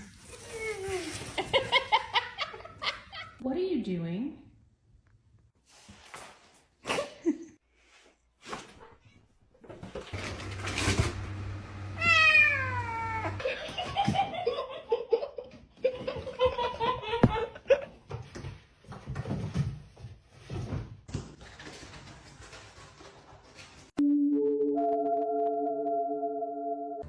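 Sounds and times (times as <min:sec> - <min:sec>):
cat meowing: 0:12.0 - 0:13.4.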